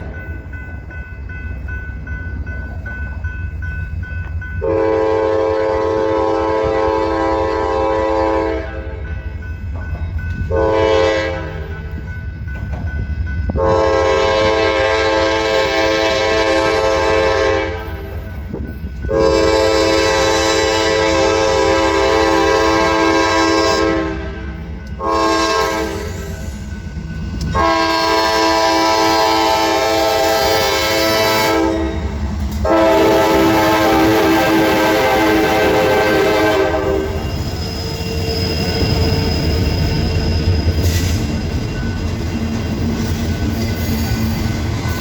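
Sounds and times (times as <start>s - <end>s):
train rumbling: 0.0s - 45.0s
locomotive horn blasts: 4.6s - 9.0s, 10.5s - 11.7s, 13.6s - 18.1s, 19.1s - 26.3s, 27.4s - 37.2s.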